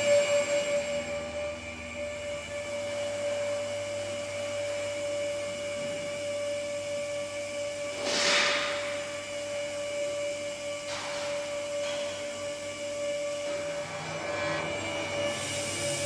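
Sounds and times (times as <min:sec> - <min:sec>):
hydraulic pump whine: 0:00.0 - 0:16.0
hiss burst: 0:07.9 - 0:09.0.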